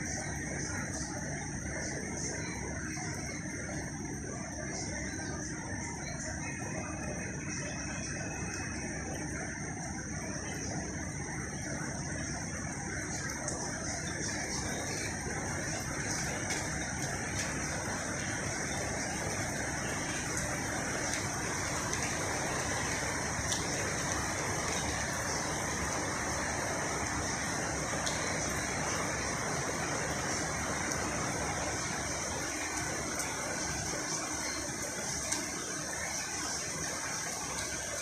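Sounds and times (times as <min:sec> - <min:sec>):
heavy rain: 0:00.0 - 0:38.0
traffic on wet roads: 0:13.0 - 0:38.0.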